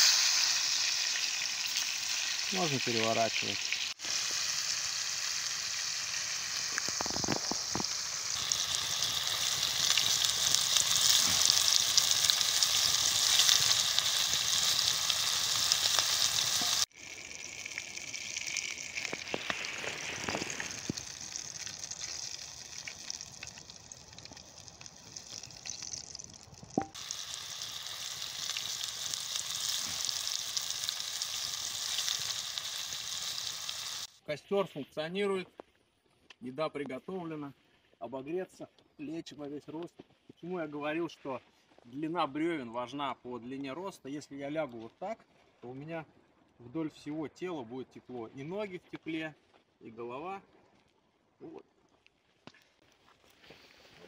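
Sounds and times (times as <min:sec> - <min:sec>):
fish sizzling in oil: 0:00.0 - 0:34.1.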